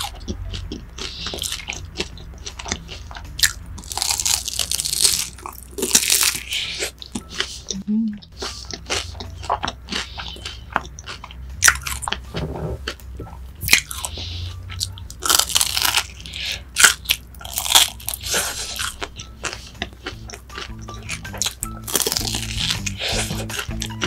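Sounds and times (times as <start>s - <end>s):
crunchy chewing of fried food: 0.0s - 24.0s.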